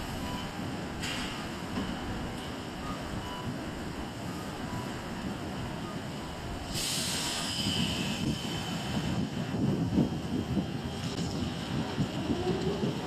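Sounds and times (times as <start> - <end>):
train wheels rumbling on rail: 0.0 - 13.0
high squealing hiss: 6.7 - 8.8.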